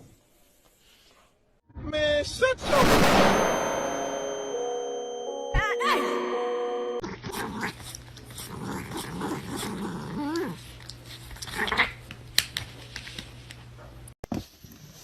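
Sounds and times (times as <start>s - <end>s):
steady tone: 2.6s - 7.0s
dog growling: 7.0s - 10.6s.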